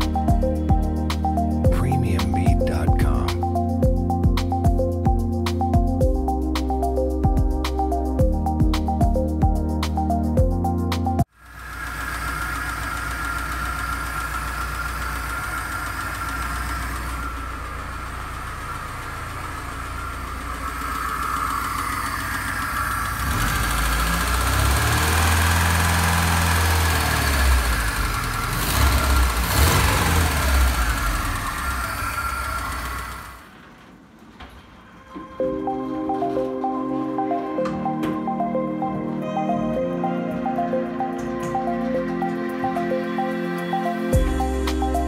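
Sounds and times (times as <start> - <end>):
car engine idling: 11.4 - 33.8.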